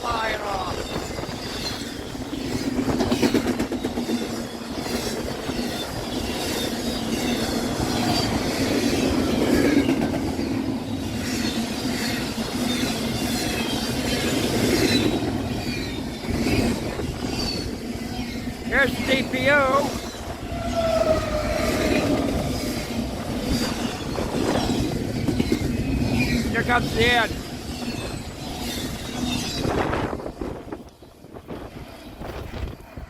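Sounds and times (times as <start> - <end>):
freight train rushing roar: 0.0 - 33.0
wheels clattering over rail joints: 0.8 - 30.9
high wheel squeals: 11.3 - 26.5.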